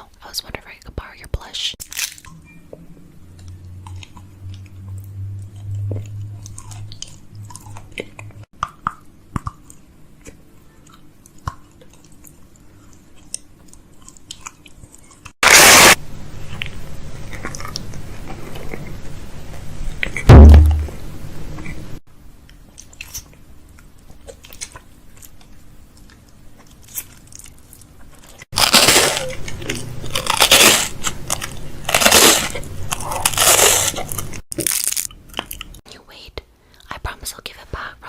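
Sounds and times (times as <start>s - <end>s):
crunchy rustling of packaging: 1.8s - 2.3s, 24.1s - 35.8s
loud low thump: 20.3s - 21.1s.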